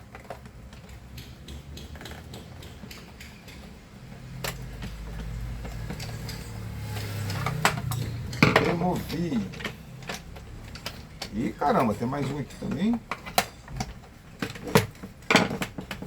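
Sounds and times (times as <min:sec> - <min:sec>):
screwdriver clicking and scraping: 0:00.4 - 0:03.7.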